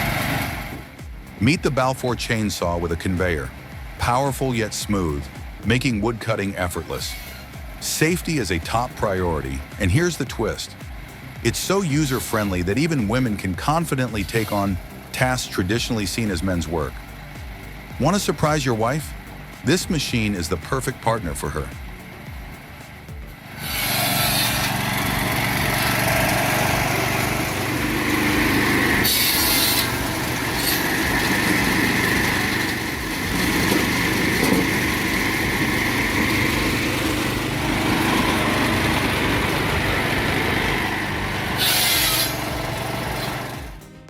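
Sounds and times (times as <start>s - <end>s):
chainsaw cutting logs: 16.2s - 44.0s.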